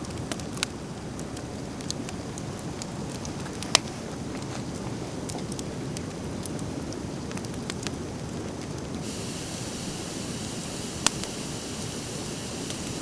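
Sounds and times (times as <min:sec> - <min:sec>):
fire crackling and popping: 0:00.0 - 0:13.0
steady high hiss: 0:09.0 - 0:13.0.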